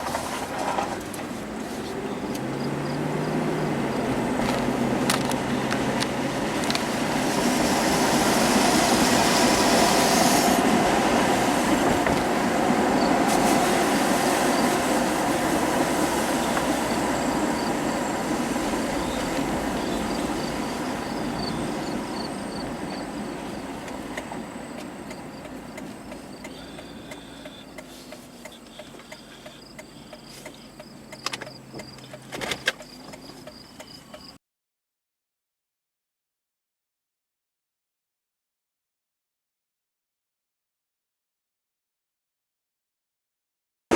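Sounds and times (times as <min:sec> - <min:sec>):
vehicle road and engine noise: 0:00.0 - 0:34.4
faint insects chirping: 0:16.4 - 0:23.9, 0:24.5 - 0:34.4.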